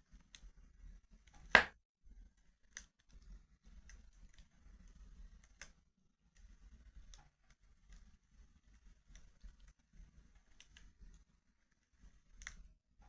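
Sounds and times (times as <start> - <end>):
wood fire crackling: 0.0 - 13.0
sharp loud fire pop: 1.5 - 1.7.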